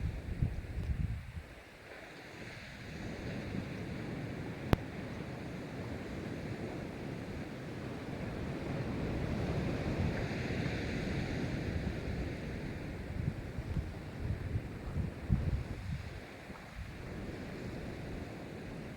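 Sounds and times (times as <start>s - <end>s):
wind buffeting microphone: 0.0s - 1.6s, 2.5s - 18.9s
surf breaking and washing: 1.7s - 18.9s.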